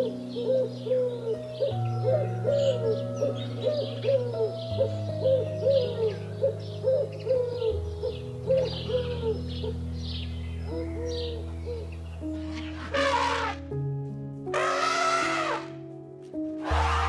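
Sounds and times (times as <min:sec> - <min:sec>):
pigeon cooing: 0:00.0 - 0:09.8.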